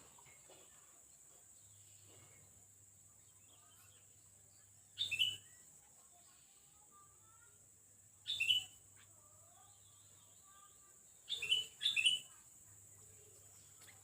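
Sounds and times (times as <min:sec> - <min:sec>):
faint bird twittering: 0:01.6 - 0:07.6, 0:08.2 - 0:12.4, 0:13.0 - 0:14.0
sharp bird calls: 0:05.0 - 0:05.6, 0:08.3 - 0:08.8, 0:11.3 - 0:12.4.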